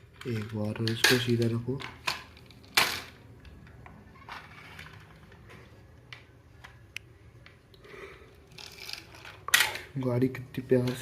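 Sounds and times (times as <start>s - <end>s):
plastic toy scraping rustle: 4.2s - 5.2s, 8.5s - 9.4s.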